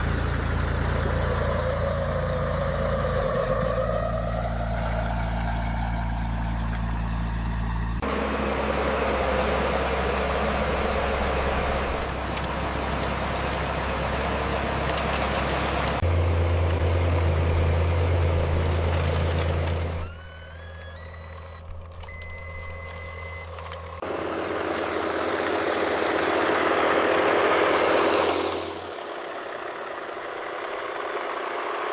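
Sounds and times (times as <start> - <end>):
toy truck motor and gear hum: 8.0 - 31.9
rising beeps: 20.0 - 23.5.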